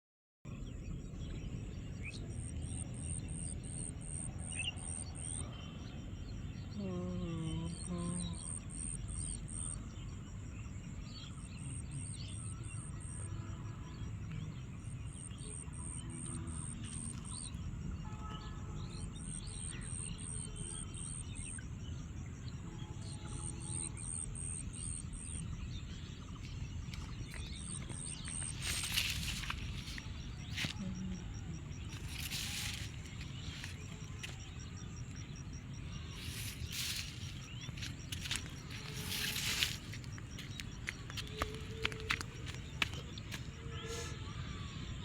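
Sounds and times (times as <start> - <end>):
insects chirping: 0.5 - 45.0
birds chirping: 24.0 - 44.2
steady low rumble: 25.6 - 41.3.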